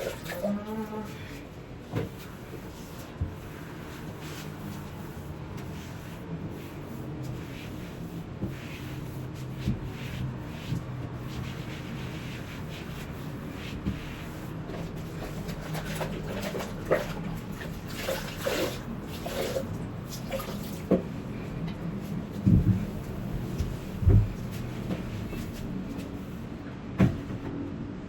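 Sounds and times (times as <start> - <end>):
rubbing and handling noises: 0.0 - 27.4
steady low hum: 18.8 - 28.0
soft knocks: 22.4 - 25.5.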